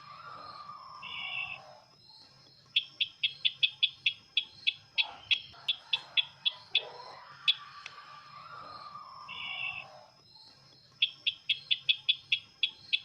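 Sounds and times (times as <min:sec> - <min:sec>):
bird chipping notes: 0:02.7 - 0:08.0.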